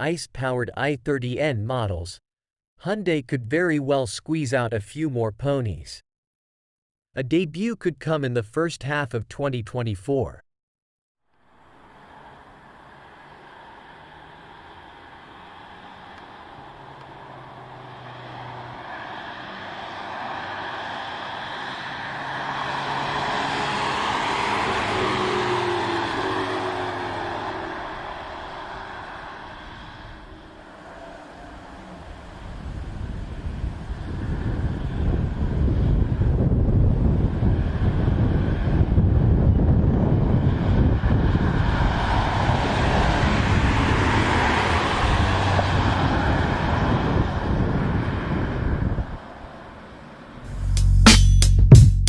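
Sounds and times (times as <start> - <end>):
car engine passing at speed: 11.4 - 51.0
wind buffeting microphone: 32.1 - 49.3.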